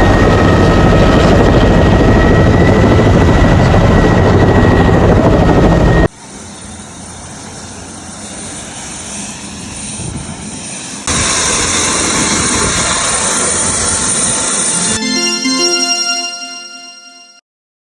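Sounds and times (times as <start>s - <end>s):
helicopter rotor and engine: 0.0s - 9.6s, 11.0s - 15.2s.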